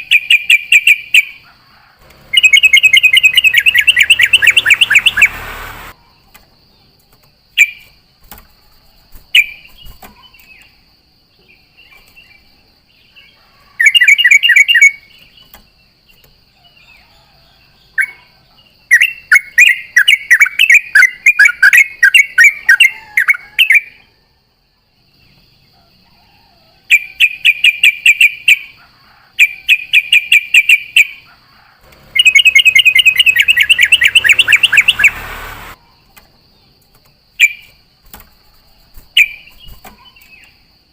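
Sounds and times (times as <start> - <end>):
bird singing chattering runs: 2.3 - 8.6, 9.2 - 10.8, 32.0 - 35.8, 38.8 - 40.6.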